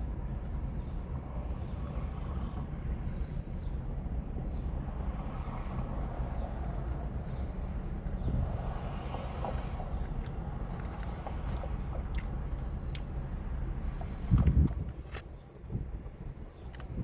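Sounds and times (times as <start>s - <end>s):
steady low rumble: 0.0s - 17.0s
person chewing and eating: 10.2s - 13.1s.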